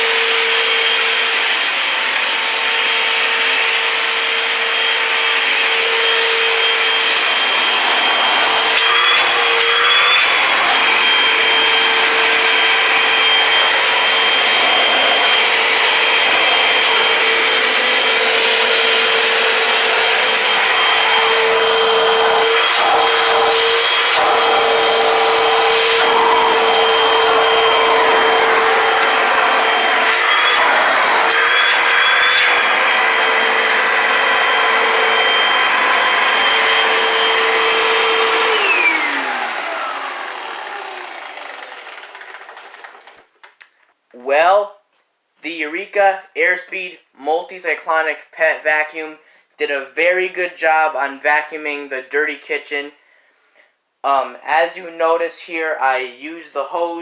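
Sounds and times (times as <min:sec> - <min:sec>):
vacuum motor whine: 0:00.0 - 0:43.3
suction air rushing: 0:03.4 - 0:41.2.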